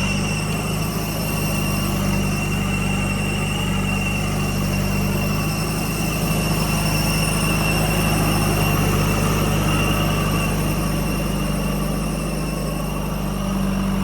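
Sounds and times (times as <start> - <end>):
heavy diesel engine running: 0.0 - 14.0
thin high whine: 0.0 - 14.0.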